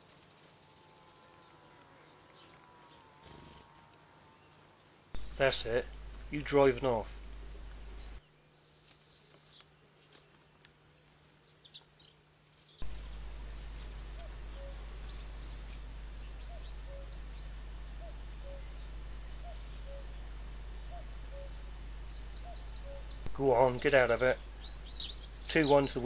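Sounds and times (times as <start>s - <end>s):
steady low hum: 0.0s - 8.7s, 12.3s - 26.0s
high-pitched bird chirps: 14.1s - 26.0s.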